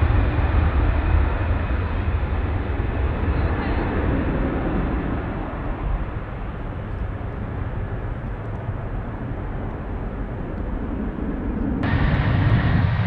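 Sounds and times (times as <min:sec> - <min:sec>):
jet engine rumble: 0:00.0 - 0:13.0.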